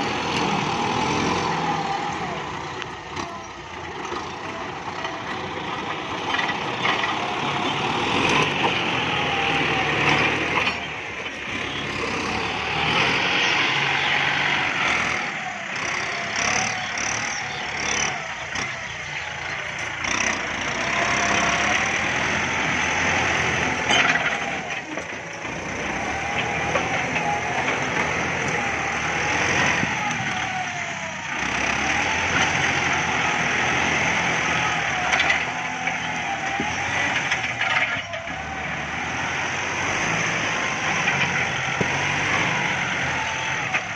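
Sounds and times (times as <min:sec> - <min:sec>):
tractor diesel engine running: 0:00.0 - 0:43.9
wavering engine whine: 0:00.0 - 0:43.9.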